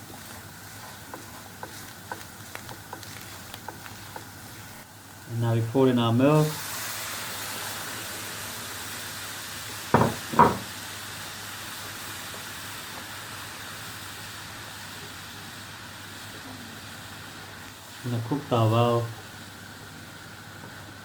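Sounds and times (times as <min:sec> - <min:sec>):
milk sizzling in a pan: 0:00.0 - 0:21.0
sharp knocks: 0:10.0 - 0:10.7.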